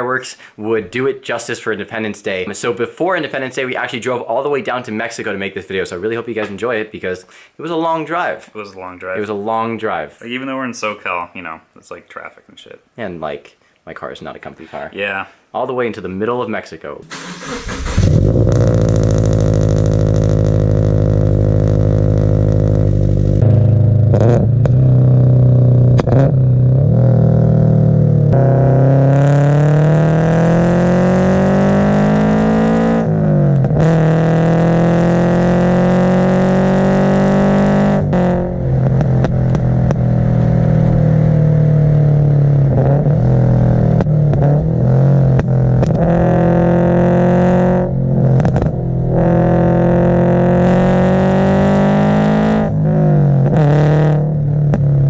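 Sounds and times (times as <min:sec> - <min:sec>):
exhaust cracks and pops: 0:17.1 - 0:20.8, 0:38.7 - 0:41.2, 0:43.8 - 0:46.2, 0:48.2 - 0:48.9
car engine revving: 0:17.1 - 0:55.0.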